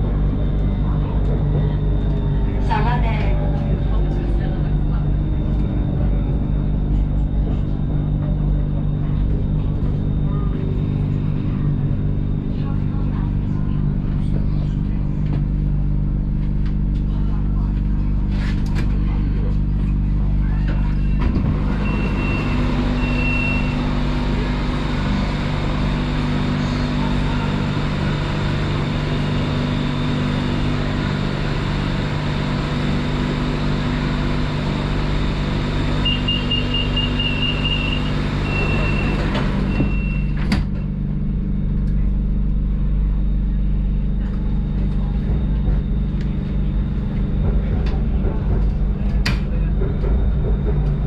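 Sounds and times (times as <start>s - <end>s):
train electrical hum: 0.0s - 51.0s
train doors shutting: 20.5s - 29.3s, 34.1s - 40.9s
high door-warning beeps: 20.8s - 23.9s, 35.9s - 40.9s.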